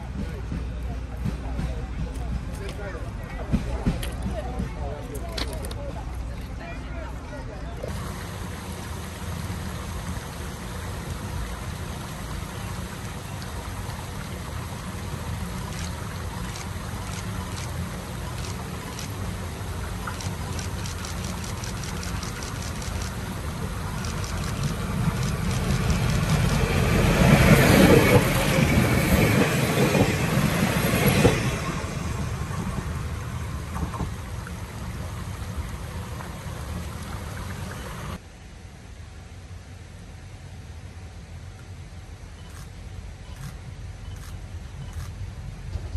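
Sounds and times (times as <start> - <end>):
diesel train passing: 0.0 - 38.2
railcar engine rumble: 0.0 - 45.9
wheels hissing on rail: 7.8 - 38.2.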